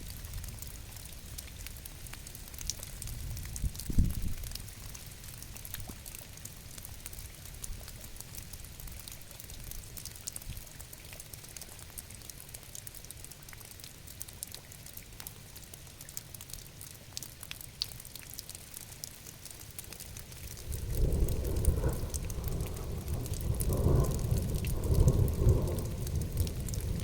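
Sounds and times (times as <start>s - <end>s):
raindrops ticking on a surface: 0.0s - 27.0s
low continuous rumble: 20.0s - 27.0s.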